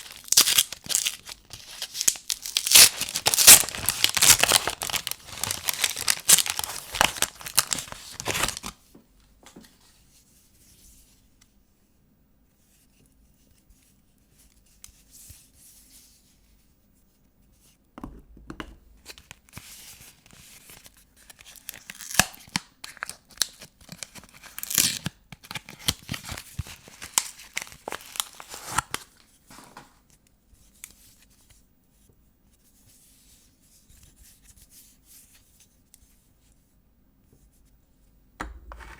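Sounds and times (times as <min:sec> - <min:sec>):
faint paper rustles: 0:00.0 - 0:08.8
paper wrapping tearing and crumpling: 0:00.0 - 0:08.8, 0:21.3 - 0:29.2.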